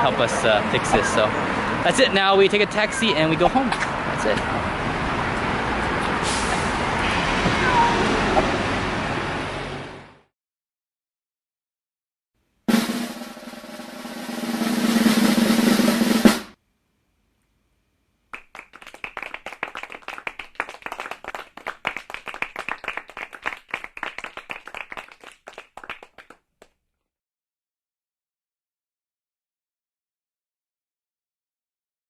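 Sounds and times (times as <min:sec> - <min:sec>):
snare drum roll: 0:12.7 - 0:16.6.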